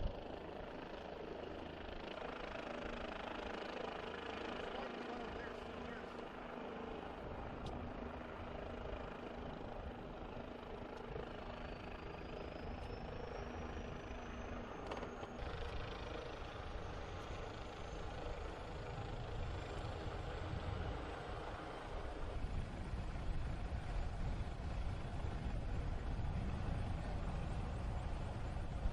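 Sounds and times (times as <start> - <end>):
helicopter rotor and engine: 0.0 - 28.9.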